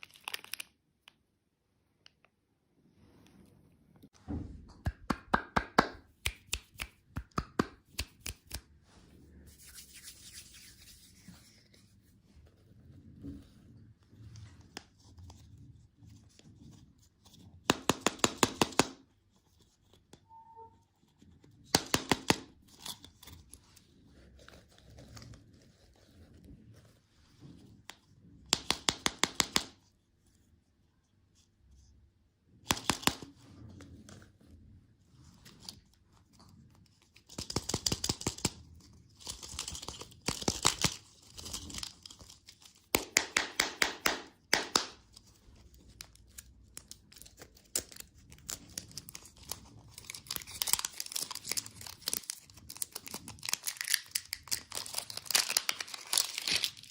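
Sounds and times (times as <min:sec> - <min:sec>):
packaging crackling: 0:47.2 - 0:56.9.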